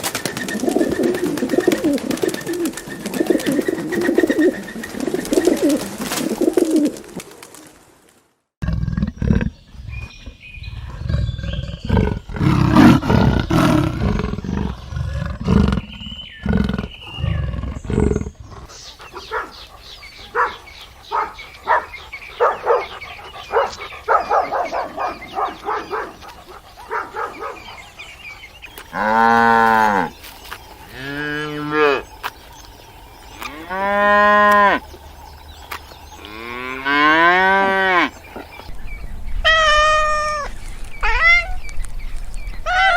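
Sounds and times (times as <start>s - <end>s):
harsh animal calls: 39.4s - 41.6s, 42.6s - 42.9s.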